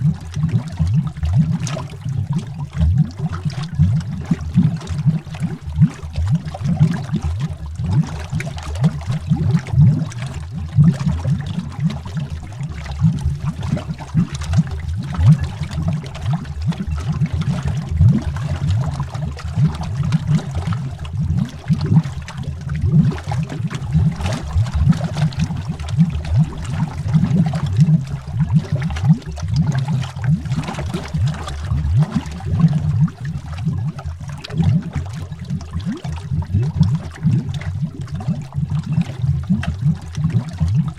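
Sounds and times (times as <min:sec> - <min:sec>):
underwater bubbling: 0:00.0 - 0:40.9.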